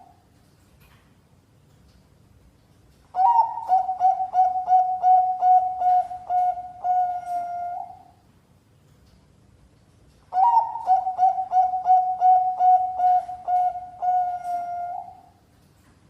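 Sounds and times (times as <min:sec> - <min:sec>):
dove cooing: 0:03.2 - 0:08.2, 0:10.3 - 0:15.3.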